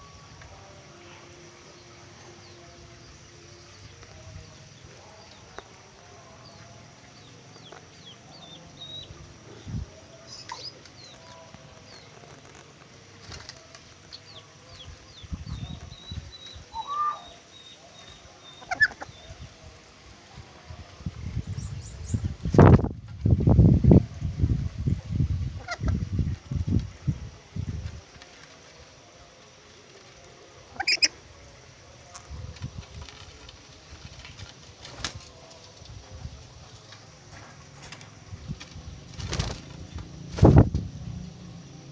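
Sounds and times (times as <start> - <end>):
birds chirping: 1.7 - 19.7.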